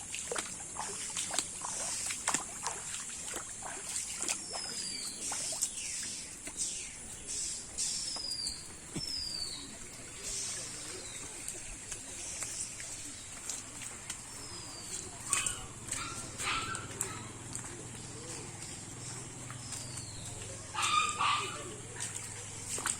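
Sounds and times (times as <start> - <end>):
birds giving high falling calls: 4.4 - 21.8.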